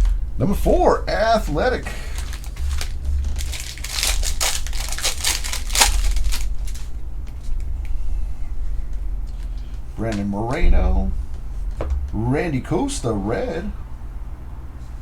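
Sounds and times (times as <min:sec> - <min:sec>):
steady low hum: 0:00.0 - 0:15.0
foil wrapper tearing and crinkling: 0:01.2 - 0:07.6.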